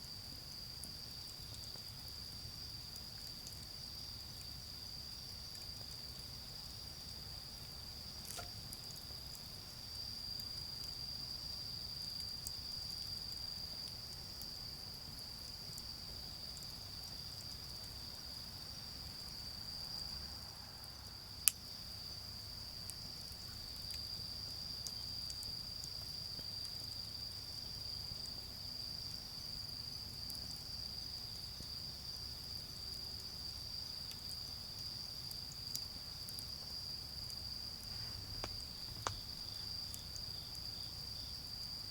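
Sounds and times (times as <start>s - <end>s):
crickets chirping: 0.0s - 41.9s
charcoal fire crackling: 7.4s - 17.4s, 21.4s - 26.4s, 35.1s - 40.9s.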